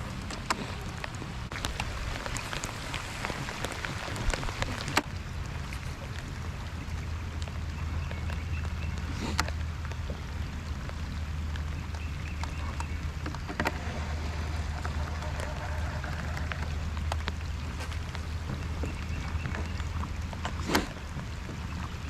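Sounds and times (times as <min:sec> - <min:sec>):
boat motor humming: 0:00.0 - 0:22.0.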